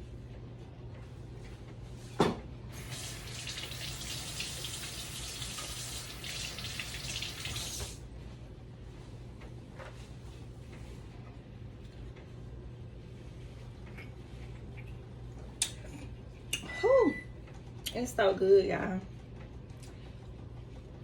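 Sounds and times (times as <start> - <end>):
faucet running into sink: 2.8 - 8.0
hands being washed: 2.8 - 8.0.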